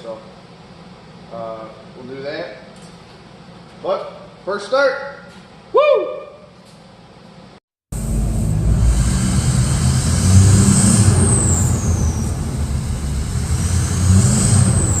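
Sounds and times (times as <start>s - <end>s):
loud unmuffled engine running: 7.9s - 15.0s
high whistle: 9.5s - 15.0s.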